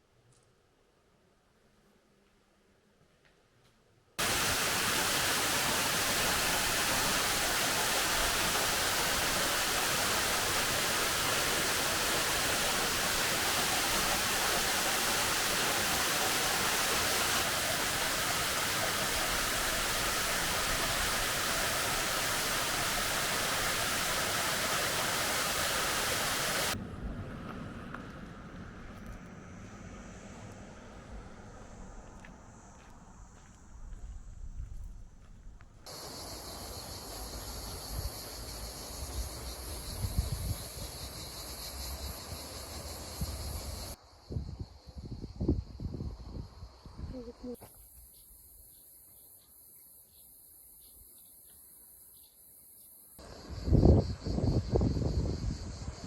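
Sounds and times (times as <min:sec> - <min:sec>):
falling water rushing: 0:04.2 - 0:26.8, 0:35.9 - 0:40.0.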